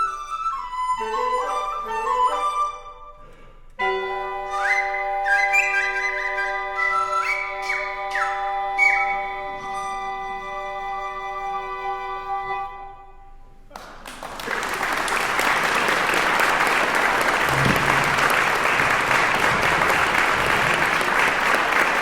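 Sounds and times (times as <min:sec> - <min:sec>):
audience applause: 0:13.8 - 0:22.0.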